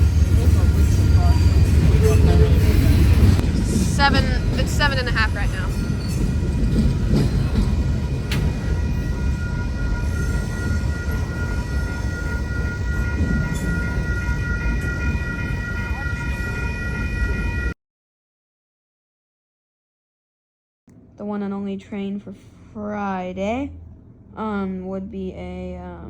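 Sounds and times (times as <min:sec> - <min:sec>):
steady high tones ringing: 0:00.0 - 0:17.8
train rumbling past: 0:00.0 - 0:17.8.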